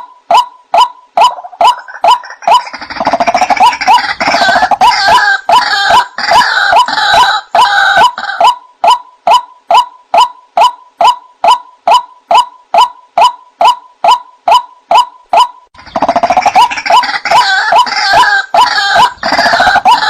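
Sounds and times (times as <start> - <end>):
bird repeated kwaak calls: 0.0 - 20.0
harsh croaking bird chorus: 1.2 - 8.5, 15.8 - 20.0.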